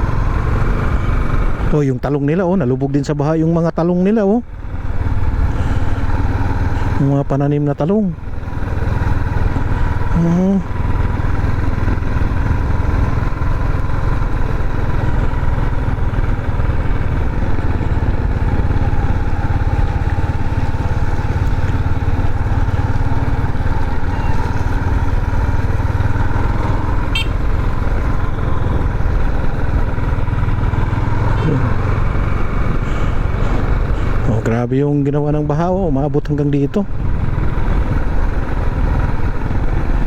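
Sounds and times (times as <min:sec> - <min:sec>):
motorcycle engine rumbling: 0:00.0 - 0:40.0.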